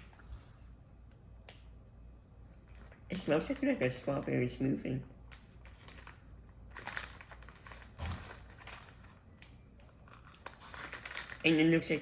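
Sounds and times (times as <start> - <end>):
candy pack crinkling: 2.7 - 4.3, 5.2 - 12.0.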